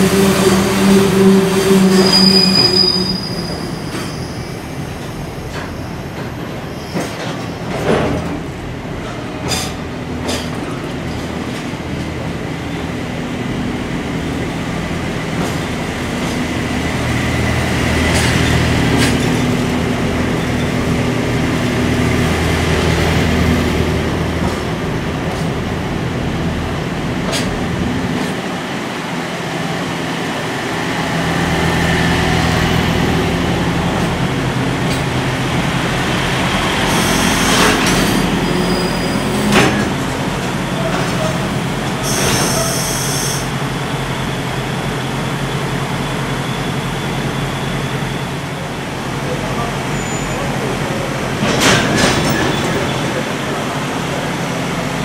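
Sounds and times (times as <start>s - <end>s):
rumble of train wheels on rail: 0.0s - 55.0s
faint wheel squeal: 1.9s - 4.6s, 49.9s - 50.6s
wheels clacking over rail joints: 51.4s - 53.2s.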